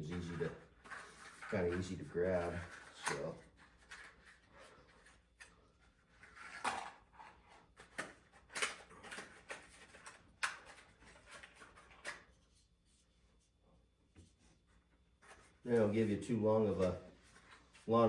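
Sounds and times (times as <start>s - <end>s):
small parts clicking and knocking: 6.1s - 12.2s.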